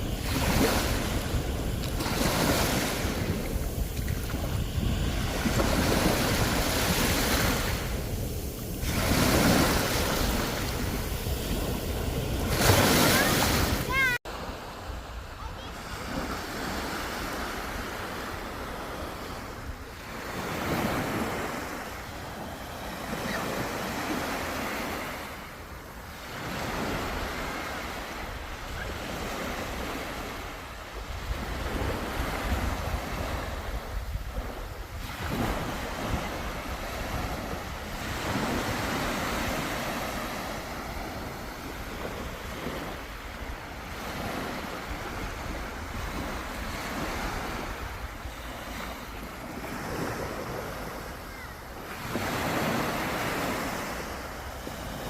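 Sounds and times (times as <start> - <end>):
wind rumbling on microphone: 0.0 - 14.2, 30.8 - 39.7
sea waves breaking on shore: 0.0 - 55.0.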